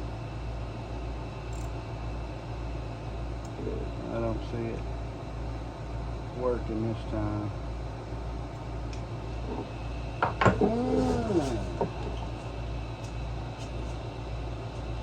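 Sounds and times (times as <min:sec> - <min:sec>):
steady low hum: 0:00.0 - 0:15.0
short vocal sound: 0:10.6 - 0:11.8.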